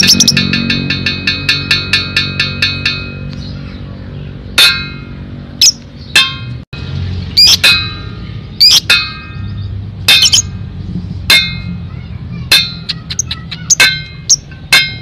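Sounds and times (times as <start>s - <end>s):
shrill bird calls: 0.0s - 0.4s, 7.3s - 10.5s, 12.3s - 14.5s
lovebird chattering: 0.0s - 0.5s, 7.4s - 7.7s, 8.5s - 10.5s, 12.5s - 14.8s.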